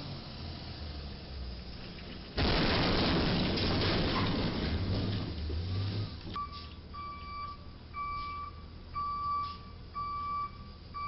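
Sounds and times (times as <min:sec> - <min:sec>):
low rumbling noise: 0:01.7 - 0:06.4.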